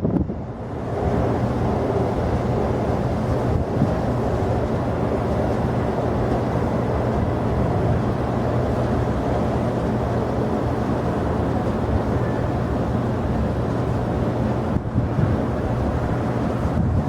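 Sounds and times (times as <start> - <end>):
jet engine noise: 0.0 - 17.0.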